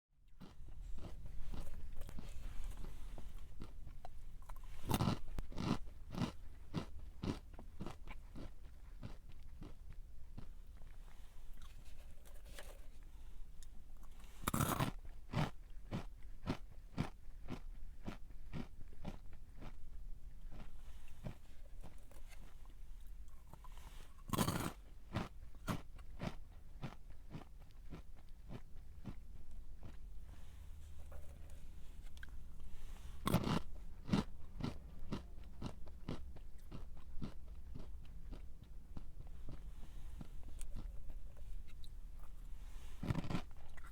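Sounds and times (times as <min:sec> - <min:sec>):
chewing with crisp crunches: 0:00.3 - 0:43.9
crunchy snack being bitten: 0:00.4 - 0:11.0, 0:14.3 - 0:19.8, 0:23.4 - 0:29.2, 0:33.2 - 0:38.5, 0:43.0 - 0:43.9.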